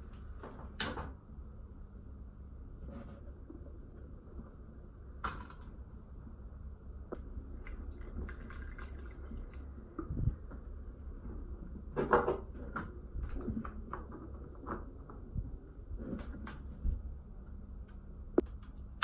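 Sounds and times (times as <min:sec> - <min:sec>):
steady low hum: 0:00.0 - 0:19.0
water dripping and trickling: 0:07.5 - 0:10.7.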